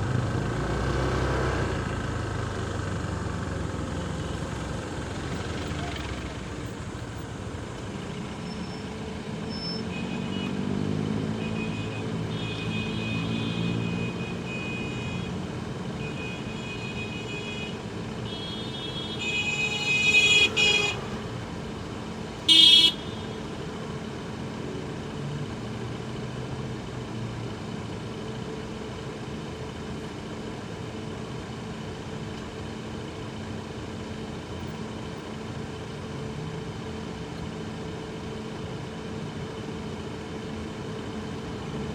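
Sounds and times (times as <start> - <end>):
road noise: 0.0 - 41.9
vehicle horns honking: 9.6 - 10.7, 11.4 - 15.4, 16.0 - 21.3, 22.4 - 23.5
loud horn blast: 18.3 - 21.3, 22.5 - 23.4.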